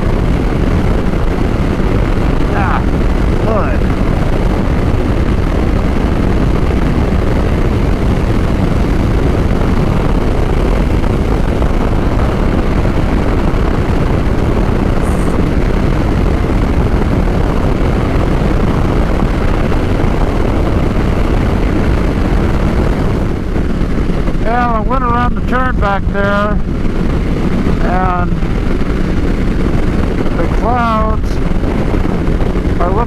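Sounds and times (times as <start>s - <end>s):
road noise: 0.0s - 25.0s
motorcycle engine: 0.0s - 33.0s
wind rush on microphone: 0.0s - 33.0s.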